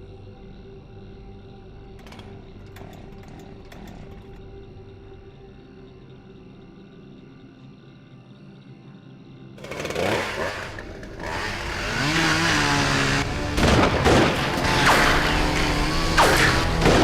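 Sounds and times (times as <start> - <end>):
chainsaw revving: 9.6 - 17.0.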